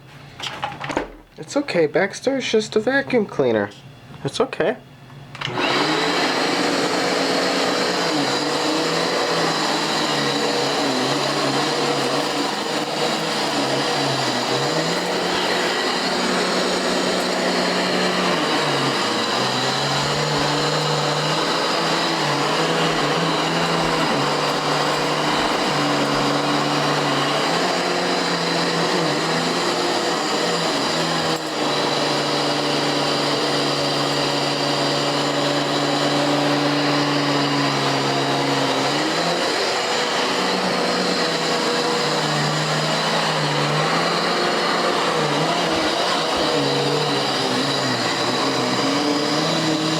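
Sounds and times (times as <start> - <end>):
vacuum cleaner running: 5.0 - 49.9.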